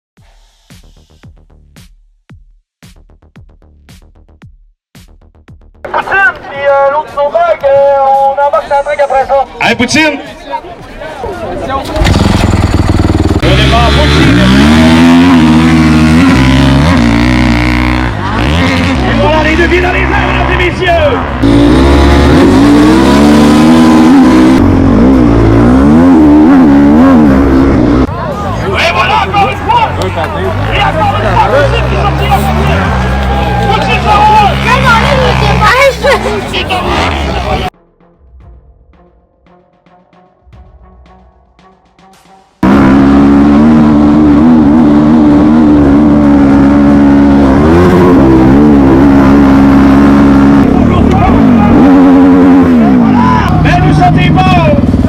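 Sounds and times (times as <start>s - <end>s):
motorcycle engine revving: 11.8s - 28.1s, 28.8s - 37.8s, 42.6s - 55.0s.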